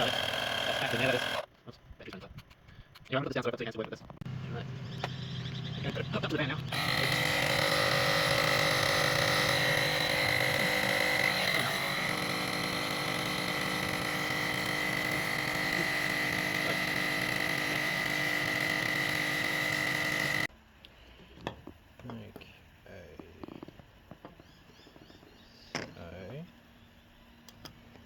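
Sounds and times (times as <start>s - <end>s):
electric air pump whining: 0.0s - 1.5s, 5.9s - 20.5s.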